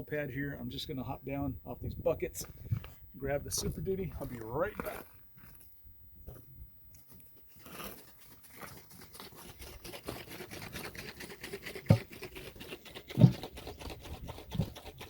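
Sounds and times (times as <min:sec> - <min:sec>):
knocks and rustles of handling things: 0:13.1 - 0:13.6.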